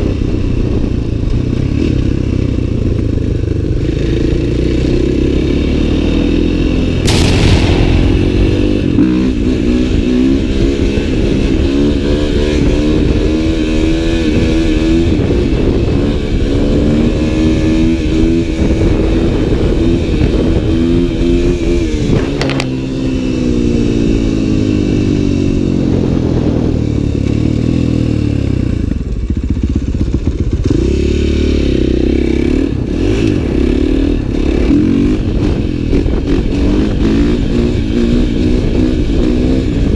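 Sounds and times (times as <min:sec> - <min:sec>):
sharp clicks: 0:07.1 - 0:08.8.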